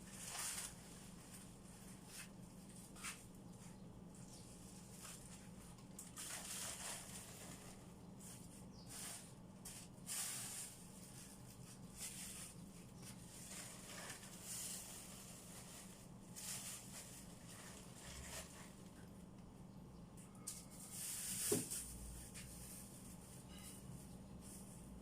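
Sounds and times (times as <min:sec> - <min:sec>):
hands rustling and brushing: 0:00.0 - 0:18.8.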